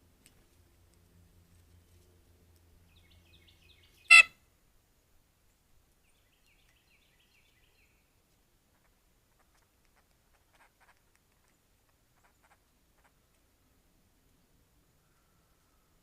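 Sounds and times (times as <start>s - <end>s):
bird harsh call: 4.0s - 4.4s.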